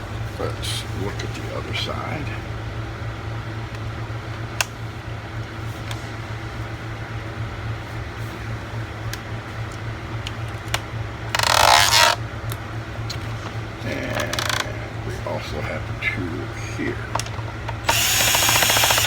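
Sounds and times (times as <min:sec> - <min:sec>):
steady low hum: 0:00.0 - 0:19.0
loud rasping noise: 0:17.8 - 0:19.0.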